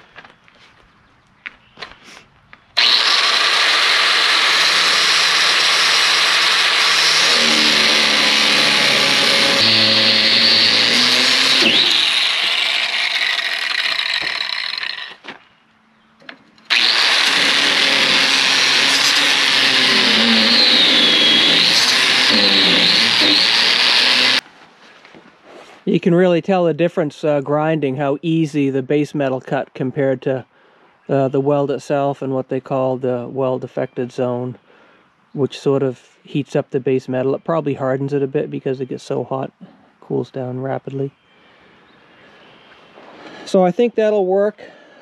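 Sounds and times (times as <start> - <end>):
grinder grinding steel plate: 2.8 - 15.3, 16.7 - 24.4.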